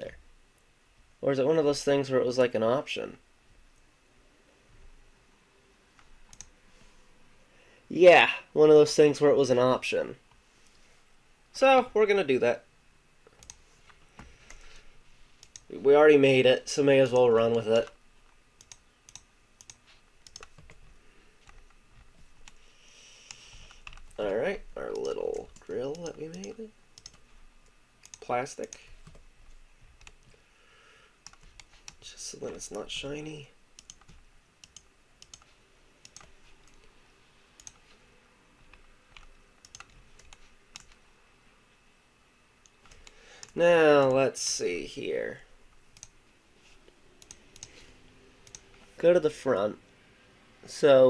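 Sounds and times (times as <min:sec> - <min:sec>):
low room hiss: 0:00.0 - 0:51.0
computer mouse and keyboard clicks: 0:06.0 - 0:06.6, 0:13.2 - 0:14.8, 0:15.4 - 0:15.7, 0:18.6 - 0:22.6, 0:23.2 - 0:24.2, 0:24.9 - 0:27.2, 0:28.0 - 0:30.4, 0:31.2 - 0:33.2, 0:33.8 - 0:36.9, 0:37.6 - 0:38.0, 0:38.6 - 0:41.0, 0:42.6 - 0:44.2, 0:45.9 - 0:46.2, 0:47.2 - 0:47.8, 0:48.4 - 0:48.9.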